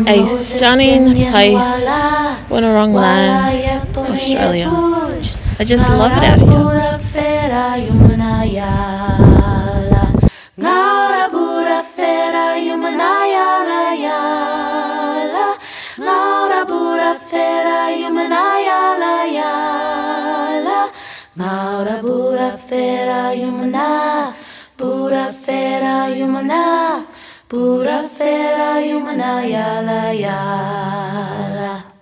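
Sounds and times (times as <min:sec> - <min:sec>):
person singing unaccompanied: 0:00.0 - 0:15.4
wind rumble on microphone: 0:00.1 - 0:10.3.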